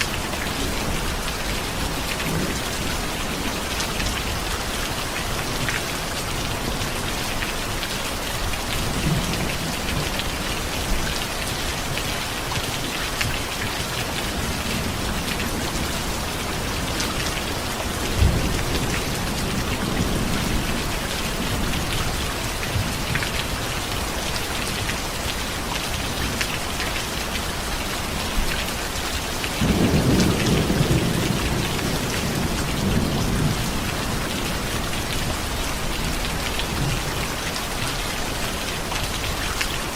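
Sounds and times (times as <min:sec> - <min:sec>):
heavy rain hissing: 0:00.0 - 0:39.9
thunder rumbling: 0:14.3 - 0:23.0, 0:29.6 - 0:37.1.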